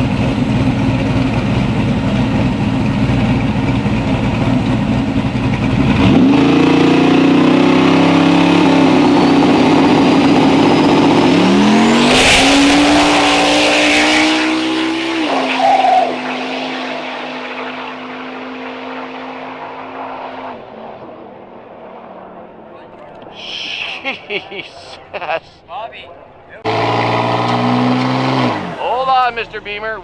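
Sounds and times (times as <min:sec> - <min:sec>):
tire noise: 0:00.0 - 0:30.0
racing car engine revving: 0:03.8 - 0:23.3, 0:26.6 - 0:29.6.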